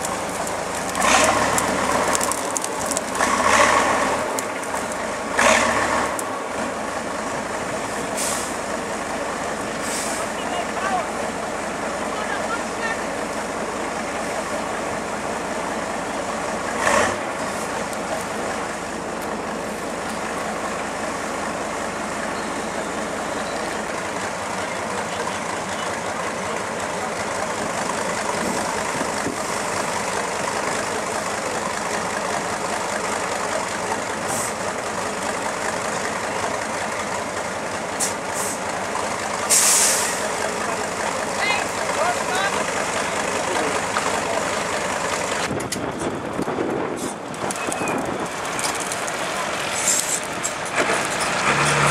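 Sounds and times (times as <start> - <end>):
diesel engine running: 0.0 - 51.9
air brake hiss: 8.2 - 8.6, 9.8 - 10.4, 39.5 - 40.2.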